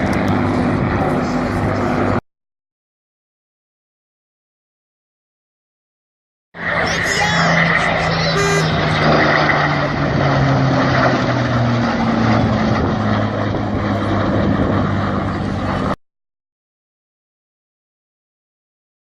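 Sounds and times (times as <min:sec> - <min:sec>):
propeller aircraft flypast: 0:00.0 - 0:02.2, 0:06.6 - 0:16.0.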